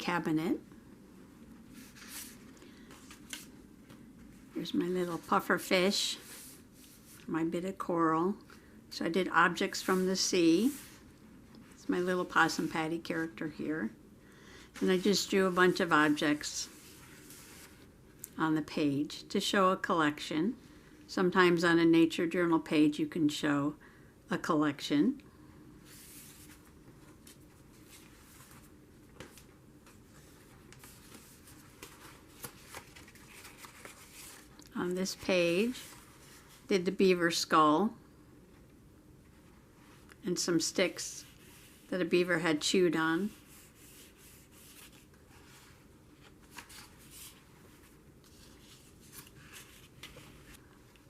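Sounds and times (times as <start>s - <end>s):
paper pages rustling: 1.8s - 7.3s, 25.9s - 36.7s, 43.2s - 51.0s.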